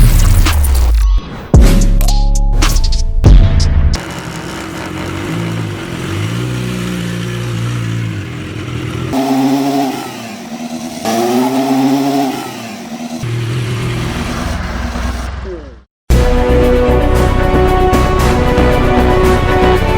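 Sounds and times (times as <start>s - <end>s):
motorcycle engine revving: 4.0s - 15.9s.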